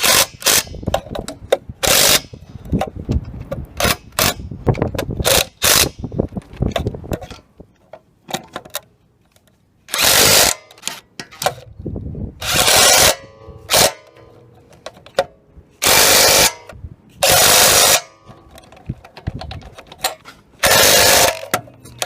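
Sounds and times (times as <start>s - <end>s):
impact wrench hammering: 12.4s - 14.3s, 15.8s - 18.4s
metallic clicks and clatter: 18.2s - 22.0s.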